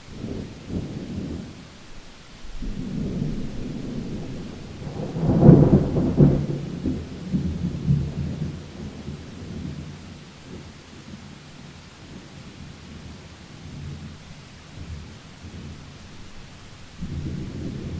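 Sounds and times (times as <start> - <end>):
rain: 0.0 - 17.9
thunderclap: 2.5 - 9.8, 17.0 - 17.9.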